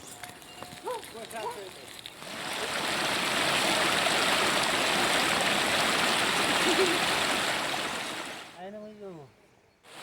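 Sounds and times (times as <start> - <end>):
mountain stream rushing: 2.1 - 8.6.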